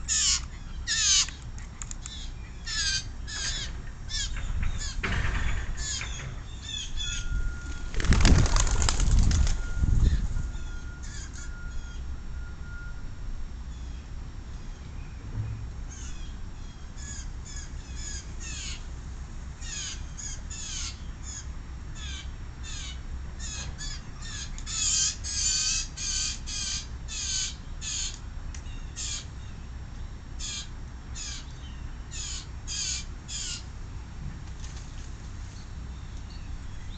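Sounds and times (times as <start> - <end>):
blue jay rasping calls: 0.0 - 5.0, 5.8 - 7.9, 10.0 - 12.1, 15.9 - 19.0, 19.6 - 29.6, 30.3 - 33.8.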